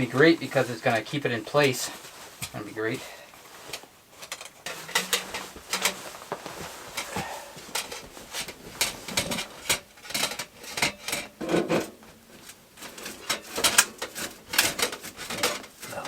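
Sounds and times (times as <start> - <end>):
metal pipe scrapes clicks and knocks: 3.6 - 16.0.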